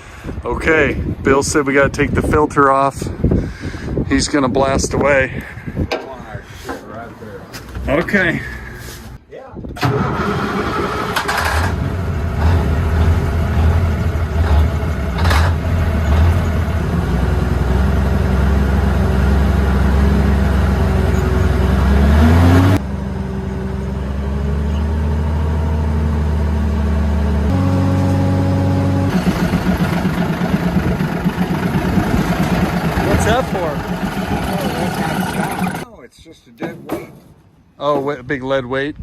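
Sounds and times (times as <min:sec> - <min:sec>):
truck engine revving: 0:09.9 - 0:35.9.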